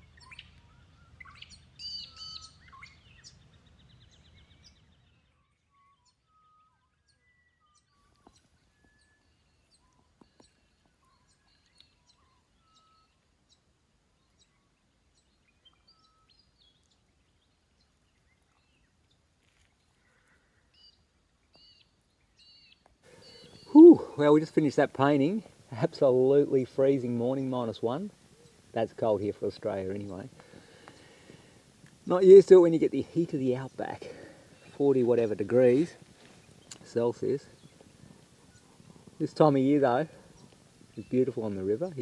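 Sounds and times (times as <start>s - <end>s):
wild birds chirping and trilling: 23.1s - 42.0s.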